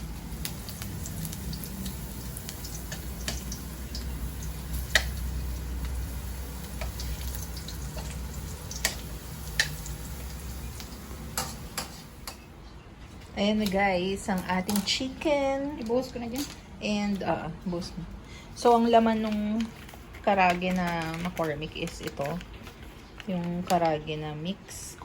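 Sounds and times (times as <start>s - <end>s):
pot cooking on stove: 0.0s - 12.4s.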